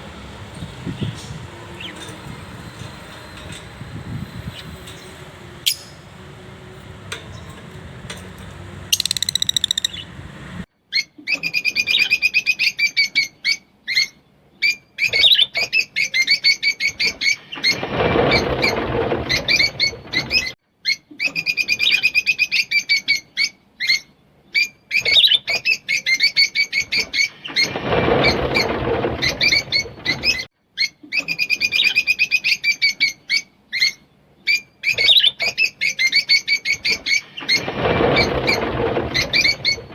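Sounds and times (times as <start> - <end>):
lovebirds chirping rapidly: 4.2 - 6.5, 8.6 - 10.5.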